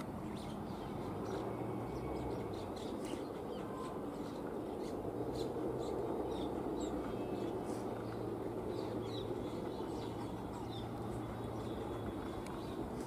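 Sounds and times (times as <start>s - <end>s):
low outdoor rumble: 0.0s - 13.0s
small birds chirping: 0.0s - 13.0s.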